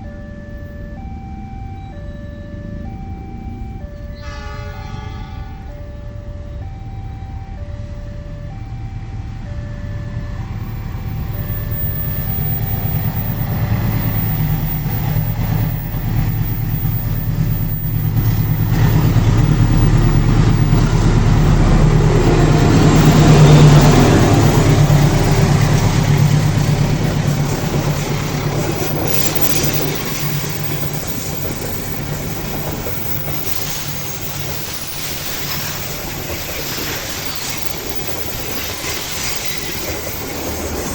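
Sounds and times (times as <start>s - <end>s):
diesel locomotive engine hum: 0.0s - 40.9s
train wheels rolling on rail: 0.0s - 40.9s
repeating electronic beep: 9.5s - 40.1s.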